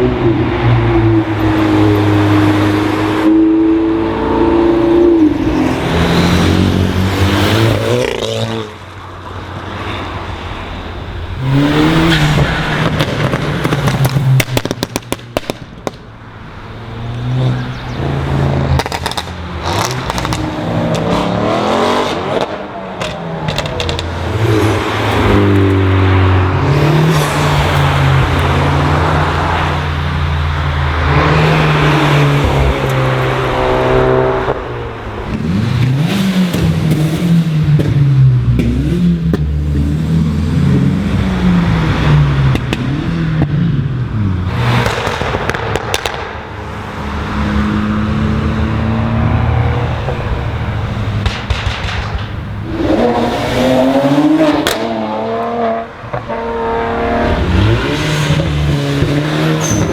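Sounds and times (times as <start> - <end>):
car engines revving past: 0.0 - 59.9
exhaust pops and crackles: 12.8 - 16.3, 18.7 - 21.1, 23.0 - 24.2, 42.5 - 43.6, 44.8 - 46.4, 51.1 - 53.0.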